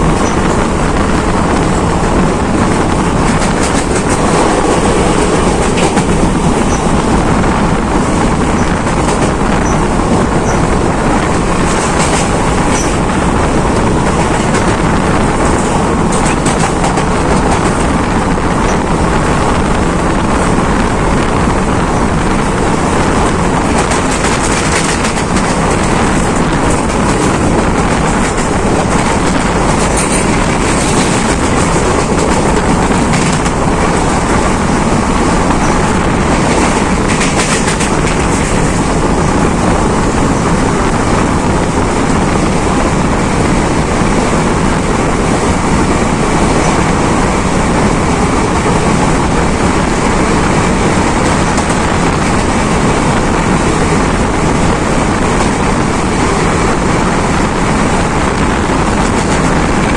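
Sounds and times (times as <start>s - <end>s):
rush of air: 0.0s - 59.9s
train wheels rumbling on rails: 0.0s - 59.9s.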